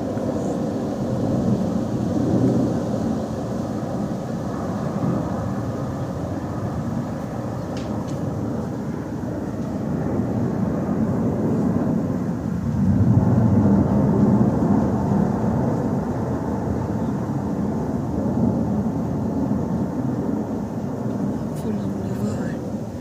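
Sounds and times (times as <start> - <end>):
aircraft rumble overhead: 0.0 - 23.0.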